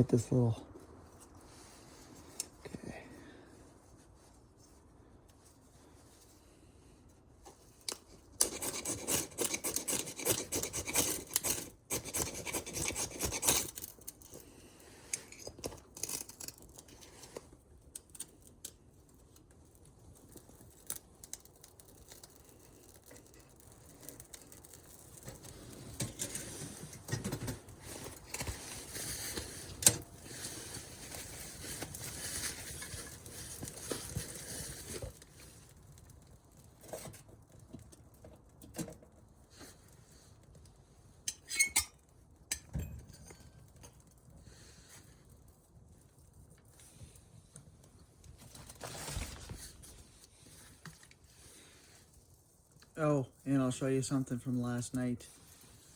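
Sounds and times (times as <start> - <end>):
knife scraping dry wood: 8.4 - 14.0.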